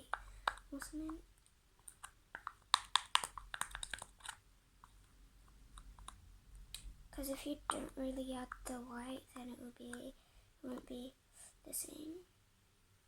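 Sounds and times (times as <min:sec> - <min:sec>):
slime squishing with sticky pops: 0:00.0 - 0:10.1.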